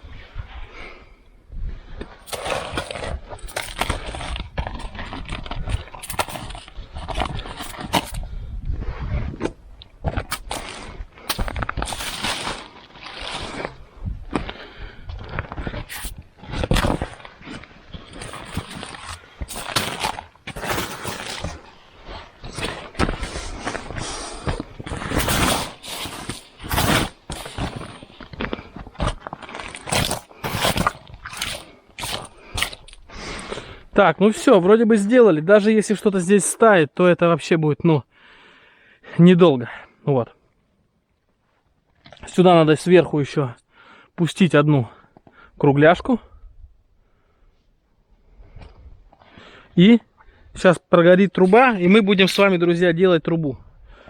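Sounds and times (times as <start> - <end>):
scraping and crunching: 1.9 - 34.6, 51.3 - 52.8.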